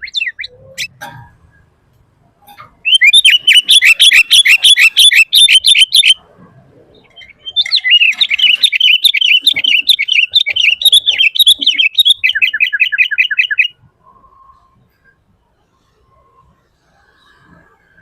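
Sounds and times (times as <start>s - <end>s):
bulbul singing: 0.0s - 1.2s, 2.5s - 6.2s, 6.9s - 13.8s.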